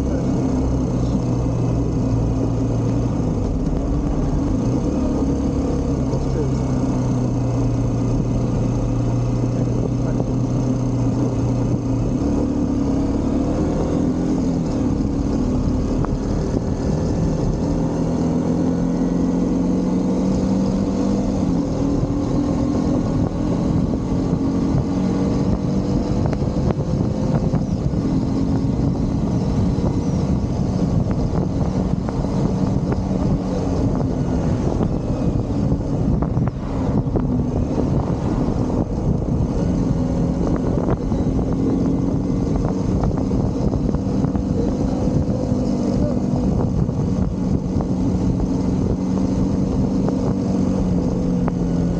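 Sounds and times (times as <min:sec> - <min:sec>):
motorcycle engine running: 0:00.0 - 0:51.9
wind and road noise: 0:00.0 - 0:51.9.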